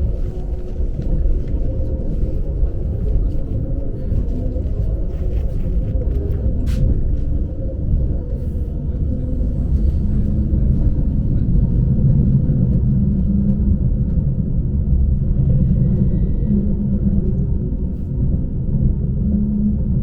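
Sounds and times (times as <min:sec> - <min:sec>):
electric train rumbling on track: 0:00.0 - 0:20.0.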